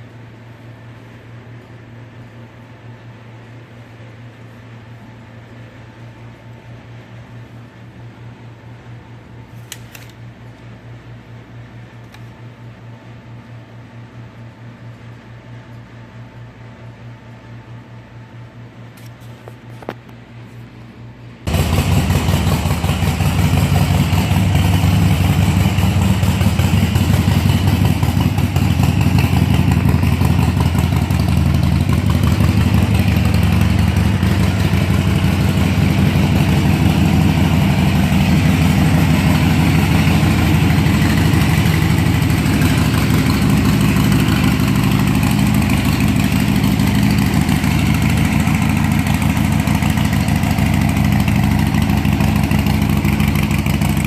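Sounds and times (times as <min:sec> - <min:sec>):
motorcycle engine idling: 0:21.5 - 0:54.0.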